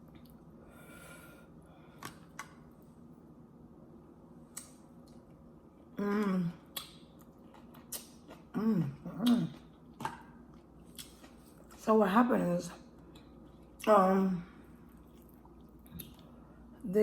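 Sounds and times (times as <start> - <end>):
soft chewing: 0.0 - 0.6, 4.5 - 11.9, 12.7 - 16.8.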